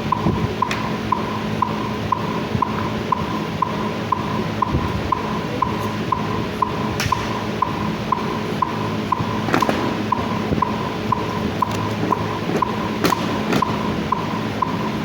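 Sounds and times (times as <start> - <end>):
metronome beeping: 0.0 - 15.0
sharp slaps: 7.0 - 7.5, 9.5 - 10.2, 12.6 - 13.8.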